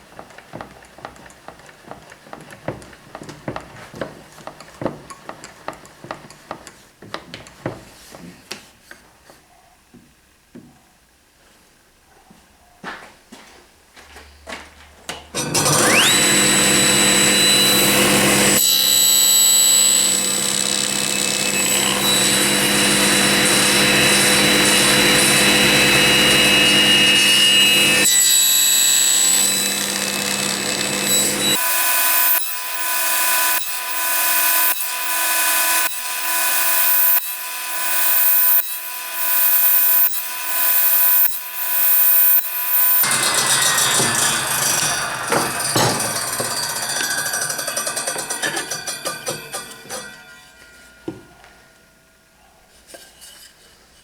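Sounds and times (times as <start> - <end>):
power tool motor whining: 15.4 - 49.0
cutting noise: 15.4 - 51.2.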